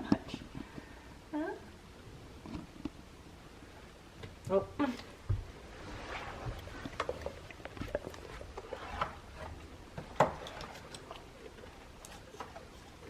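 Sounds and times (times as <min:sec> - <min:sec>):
puppy chewing treat: 0:06.5 - 0:13.0.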